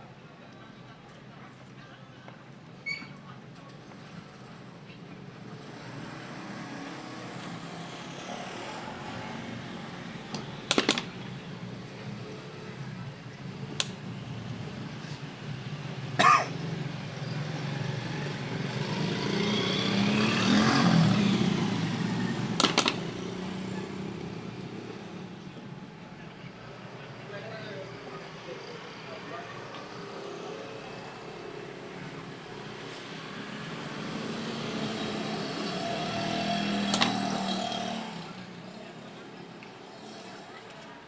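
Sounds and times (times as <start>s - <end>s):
sharp clicks or knocks: 10.3s - 11.4s, 13.7s - 14.0s, 22.6s - 23.4s, 36.8s - 37.6s.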